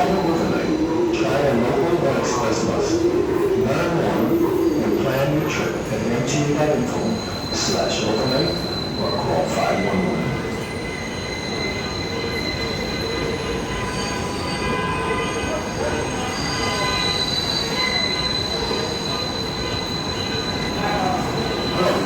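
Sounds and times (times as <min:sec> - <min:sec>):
subway train rumbling: 0:00.0 - 0:22.0
high-pitched wheel squeal: 0:06.9 - 0:22.0.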